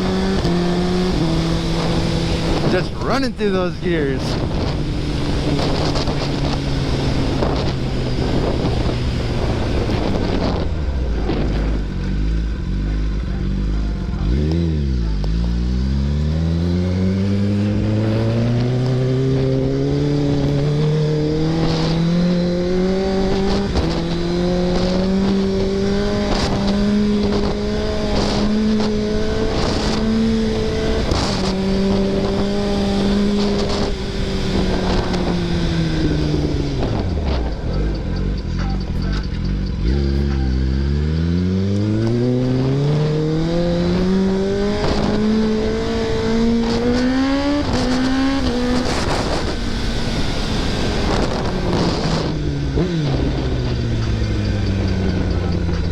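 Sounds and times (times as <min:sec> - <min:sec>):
wind rush: 0:00.0 - 0:11.9, 0:42.3 - 0:55.1
motorcycle engine revving: 0:00.0 - 0:55.9.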